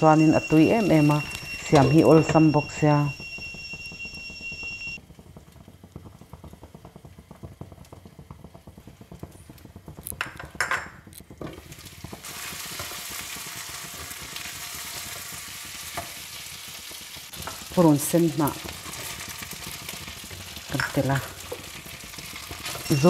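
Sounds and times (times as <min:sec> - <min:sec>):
prawns frying in a pan: 0:05.0 - 0:23.0.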